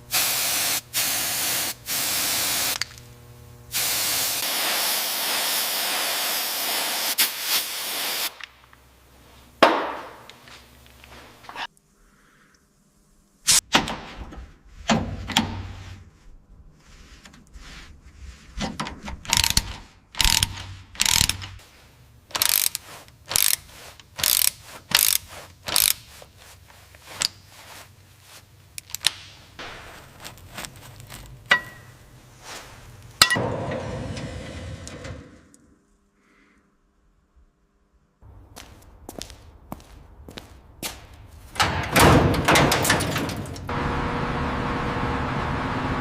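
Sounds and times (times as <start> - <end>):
hissing burst: 3.7 - 8.4
tool clicks and clanks on metal: 18.7 - 21.6, 22.3 - 26.1.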